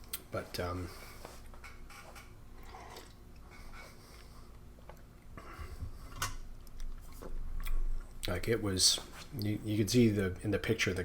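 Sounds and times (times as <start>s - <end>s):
person sipping and tasting: 2.5s - 5.6s.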